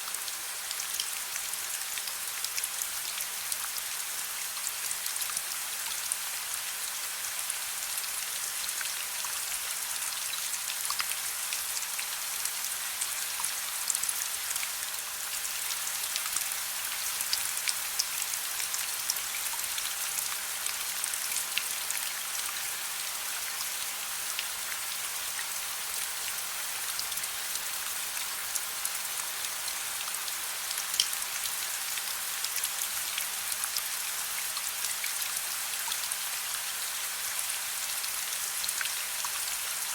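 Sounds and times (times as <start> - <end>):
raindrops pattering on a surface: 28.2 - 33.9.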